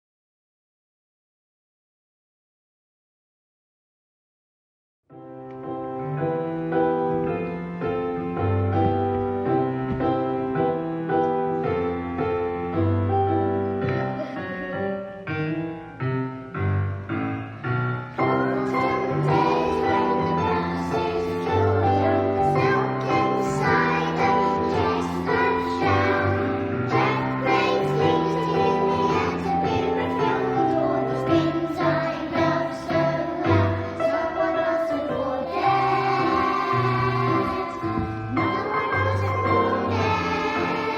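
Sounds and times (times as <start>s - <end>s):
piano playing a simple tune: 5.1s - 40.9s
young children singing: 13.8s - 14.8s, 18.2s - 40.9s.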